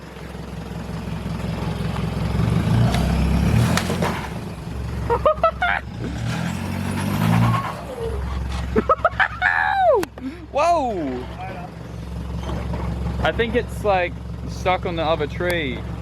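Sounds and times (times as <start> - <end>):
vehicle engine revving: 0.7 - 9.3
person shouting: 9.4 - 11.1.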